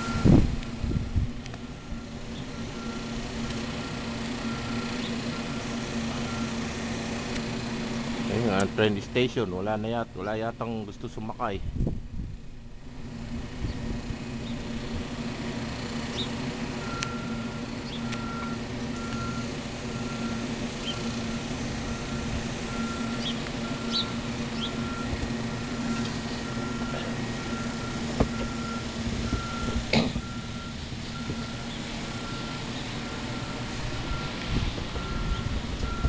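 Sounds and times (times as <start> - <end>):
backup alarm beeping: 0.0 - 1.0, 1.7 - 6.6, 16.8 - 34.4, 35.0 - 36.0
large vehicle engine humming: 0.0 - 36.0.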